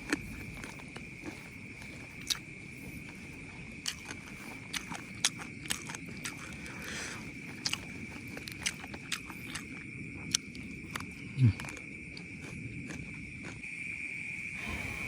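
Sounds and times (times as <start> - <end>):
person chewing: 0.0 - 13.7
high-pitched insect drone: 13.6 - 15.0.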